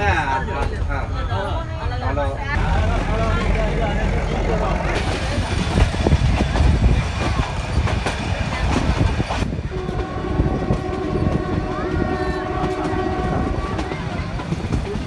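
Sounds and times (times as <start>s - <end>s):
train wheels clicking on rails: 2.6s - 15.0s
train horn: 9.7s - 14.2s.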